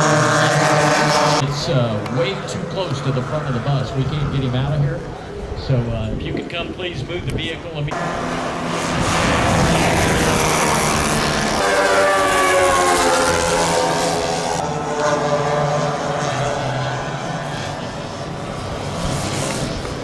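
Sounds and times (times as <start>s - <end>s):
low engine hum: 0.0s - 20.0s
model airplane engine passing by: 0.0s - 20.0s.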